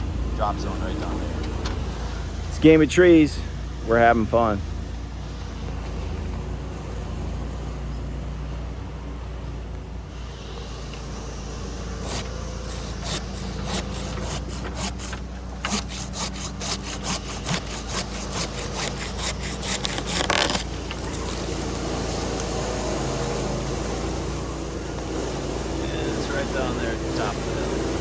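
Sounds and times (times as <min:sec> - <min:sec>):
engine idling hum: 0:00.0 - 0:28.0
handsaw cutting wood: 0:11.1 - 0:28.0.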